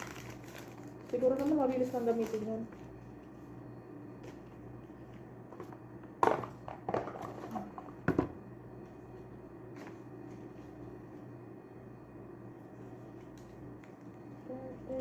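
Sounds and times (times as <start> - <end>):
steady low hum: 0.0 - 15.0
objects knocking and clattering: 5.5 - 8.4.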